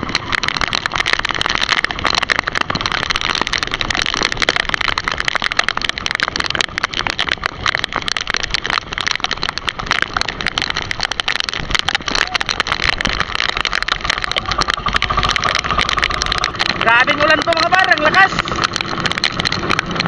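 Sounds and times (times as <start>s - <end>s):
heavy rain: 0.0s - 20.0s
strong wind: 0.0s - 20.0s.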